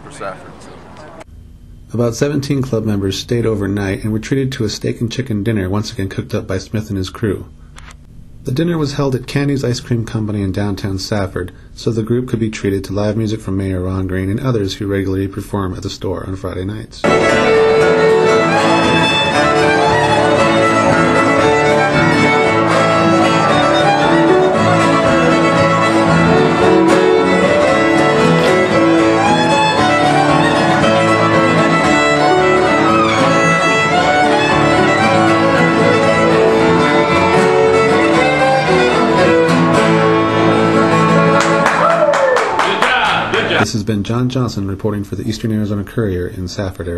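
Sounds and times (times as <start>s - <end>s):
fiddle playing a tune: 0.0s - 1.2s, 17.0s - 41.8s
guitar accompaniment: 0.0s - 1.3s, 17.0s - 43.6s.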